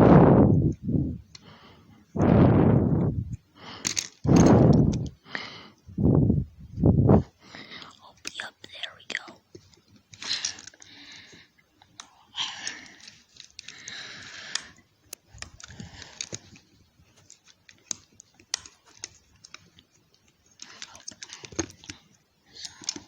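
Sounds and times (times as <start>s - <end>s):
plastic toy parts clicking: 3.8s - 5.2s, 11.9s - 16.6s, 17.2s - 19.8s, 20.5s - 23.0s
soft whispering: 7.6s - 10.6s, 12.0s - 13.3s, 20.6s - 23.0s.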